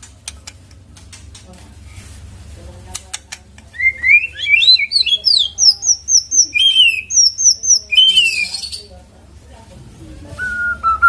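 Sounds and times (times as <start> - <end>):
bird singing whistled sweeps: 3.8 - 8.8.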